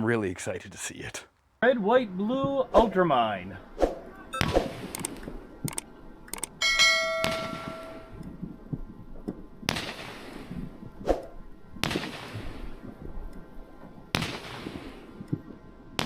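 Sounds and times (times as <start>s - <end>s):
metallic ringing clang: 6.6s - 8.2s.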